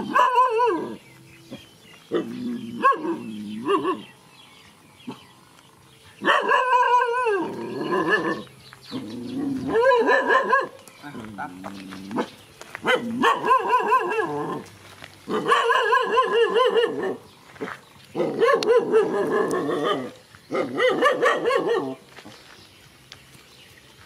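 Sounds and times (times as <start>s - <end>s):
dog barking and yelping: 0.0s - 1.0s, 2.1s - 4.1s, 6.2s - 10.8s, 12.1s - 14.7s, 15.3s - 17.3s, 18.2s - 22.1s.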